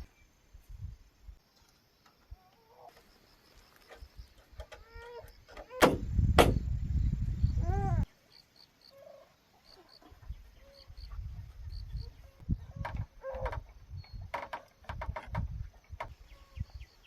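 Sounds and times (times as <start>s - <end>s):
sharp knocks: 5.8s - 6.6s.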